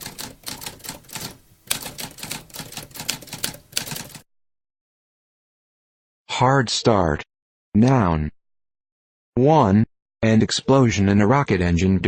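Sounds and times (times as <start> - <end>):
typewriter keys clacking: 0.0 - 4.2.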